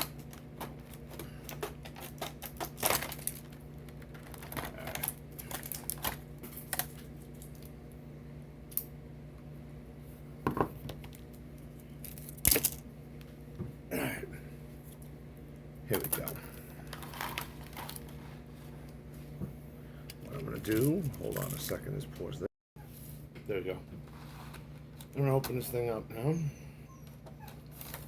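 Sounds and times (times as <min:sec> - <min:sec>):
snips cutting plastic packaging: 0:00.0 - 0:03.4.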